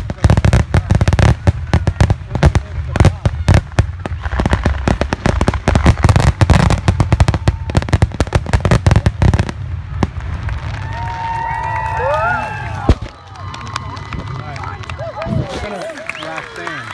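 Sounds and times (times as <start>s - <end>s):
fireworks bursting and crackling: 0.0s - 16.9s.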